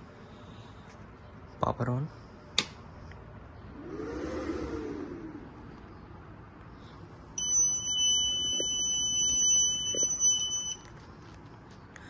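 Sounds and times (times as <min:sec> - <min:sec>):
high-pitched buzzer beep: 0:07.4 - 0:10.8.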